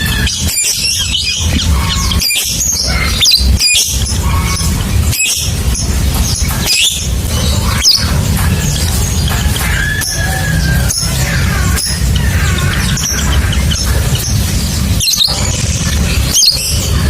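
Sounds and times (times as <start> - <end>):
lovebird chirping: 0.0 - 17.0
steady low rumble: 0.0 - 17.0.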